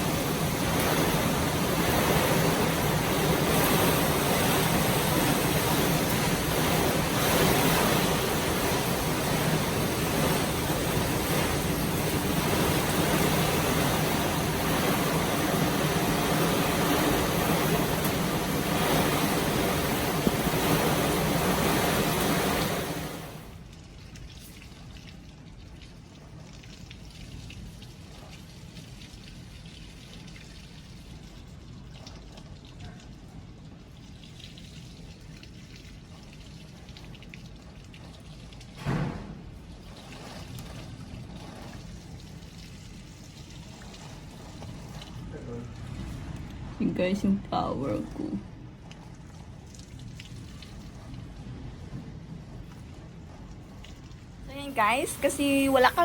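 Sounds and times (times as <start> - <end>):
heavy rain and wind: 0.0 - 23.8, 50.4 - 56.0.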